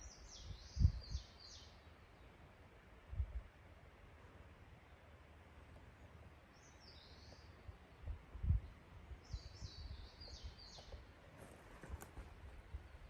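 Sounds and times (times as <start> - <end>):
small songbird chirping: 0.0 - 2.4, 5.9 - 11.2.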